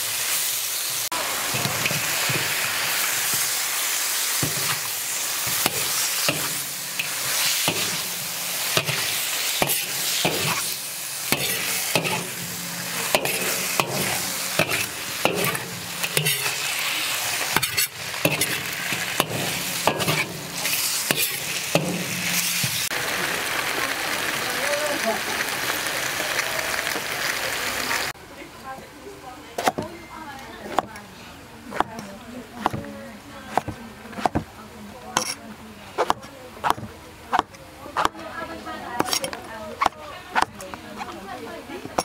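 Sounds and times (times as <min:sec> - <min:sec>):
eels sizzling in a wok: 0:00.0 - 0:28.1.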